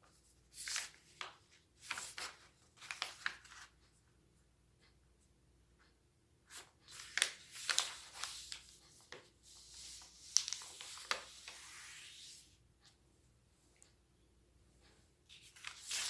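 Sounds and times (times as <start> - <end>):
paper rustling and crinkling: 0.1 - 3.8, 6.5 - 12.4, 15.3 - 16.0.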